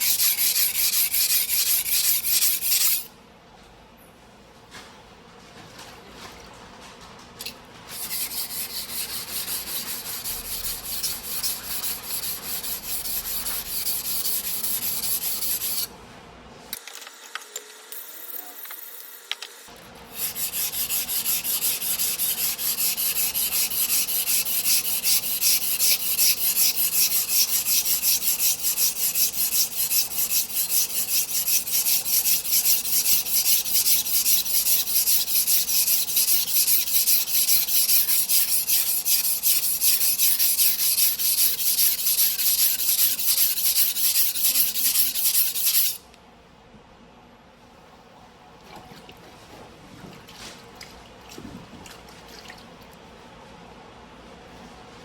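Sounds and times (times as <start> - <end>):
knife scraping on whetstone: 0.0 - 3.1, 7.9 - 15.9, 20.1 - 46.0.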